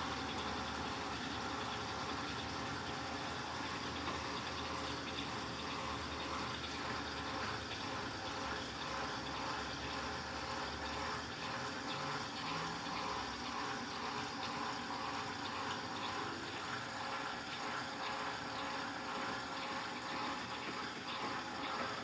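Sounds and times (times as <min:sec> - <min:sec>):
water running in washing machine: 0:00.0 - 0:22.0.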